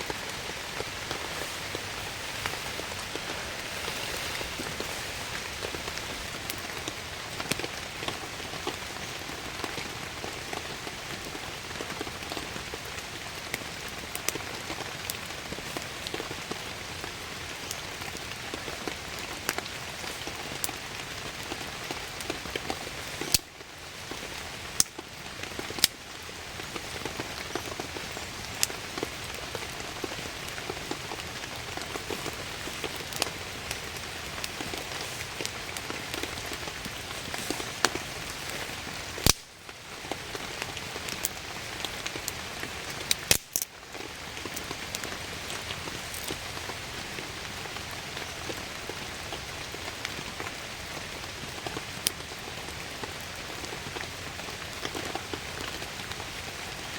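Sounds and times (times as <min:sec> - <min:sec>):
heavy rain: 0:00.0 - 0:56.9.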